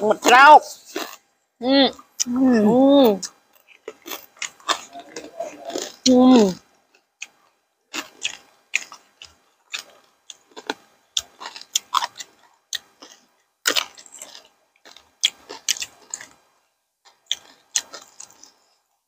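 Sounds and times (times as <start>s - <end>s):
wet chewing and crunching: 0.2s - 1.3s, 3.1s - 19.0s.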